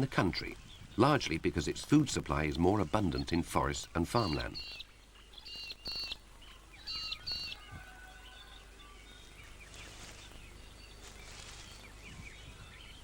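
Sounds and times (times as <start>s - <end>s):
outdoor background hiss: 0.0s - 13.0s
wild birds chirping: 0.0s - 13.0s.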